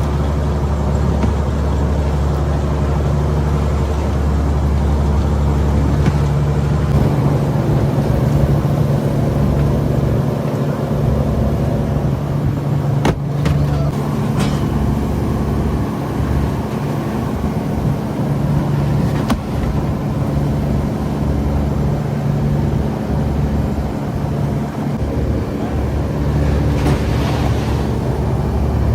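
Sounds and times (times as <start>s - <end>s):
boat engine humming: 0.0s - 28.9s
sharp knocks: 13.0s - 14.9s.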